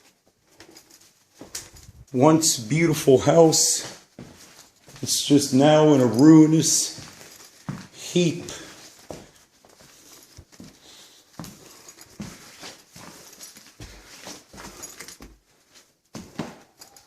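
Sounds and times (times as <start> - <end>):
footsteps: 0.0 - 17.0.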